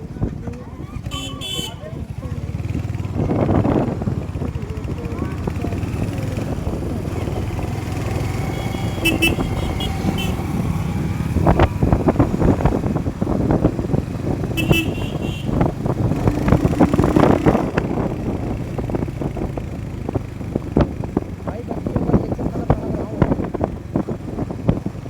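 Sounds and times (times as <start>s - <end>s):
motorcycle engine rumble: 0.0s - 25.0s
wind noise: 0.0s - 25.0s
vehicle horn beeping: 1.0s - 2.0s, 8.3s - 10.7s, 14.5s - 15.7s.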